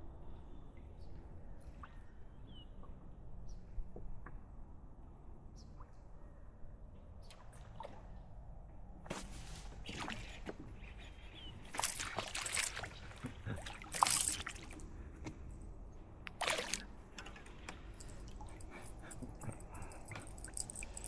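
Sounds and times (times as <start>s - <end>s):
water splashing and dripping: 11.7s - 14.8s, 16.3s - 17.3s, 18.0s - 21.0s.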